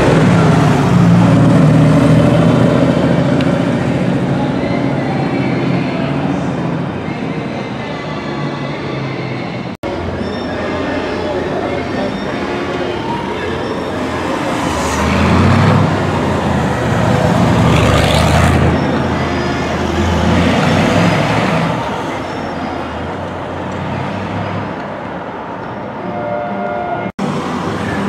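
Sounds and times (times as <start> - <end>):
car engine driving away: 0.0 - 4.5, 14.0 - 19.1
street traffic: 0.0 - 28.0.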